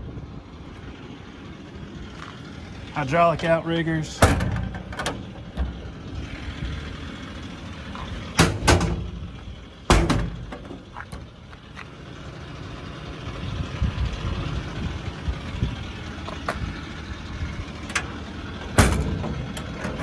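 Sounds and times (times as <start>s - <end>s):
diesel engine idling: 0.0s - 20.0s
loud sharp metal clunks: 4.2s - 6.0s, 8.3s - 11.3s, 17.9s - 20.0s.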